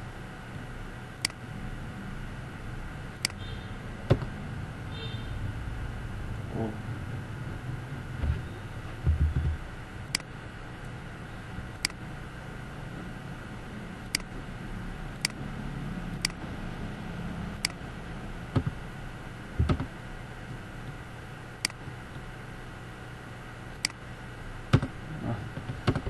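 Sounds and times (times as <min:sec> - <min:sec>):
low hum: 0:00.0 - 0:26.0
computer mouse and keyboard clicks: 0:19.6 - 0:19.9.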